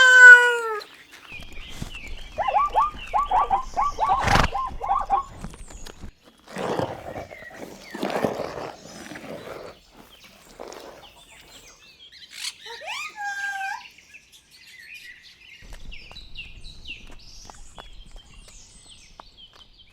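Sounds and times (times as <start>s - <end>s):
birds chirping: 0.0s - 1.3s, 6.5s - 14.0s
rough animal noises: 0.0s - 1.3s, 6.3s - 13.9s.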